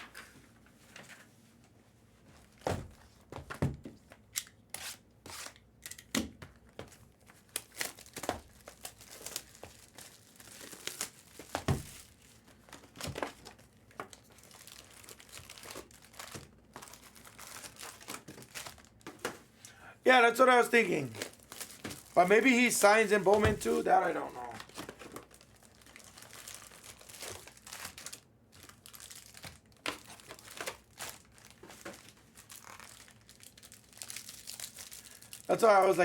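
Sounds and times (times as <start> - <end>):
wrappers tearing and crinkling: 7.3 - 19.0, 20.5 - 35.9.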